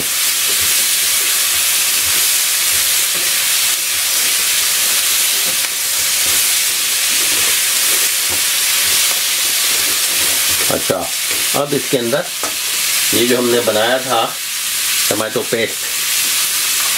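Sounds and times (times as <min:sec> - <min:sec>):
vegetables sizzling in a wok: 0:00.0 - 0:16.9.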